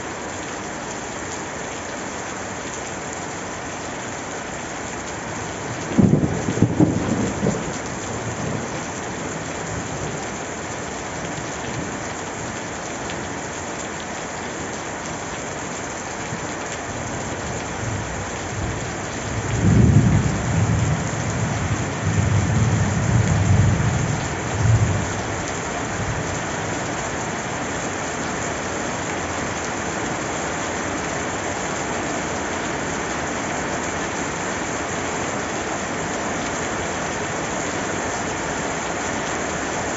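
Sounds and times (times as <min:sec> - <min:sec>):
steady rain falling: 0:00.0 - 0:39.9
thunder rumbling: 0:05.9 - 0:08.7, 0:18.6 - 0:25.2.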